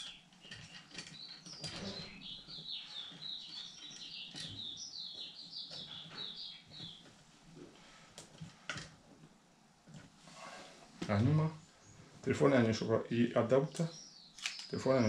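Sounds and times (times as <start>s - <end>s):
small bird twittering: 0.0s - 7.0s, 13.6s - 15.0s
metal accessory clicks: 13.7s - 14.7s.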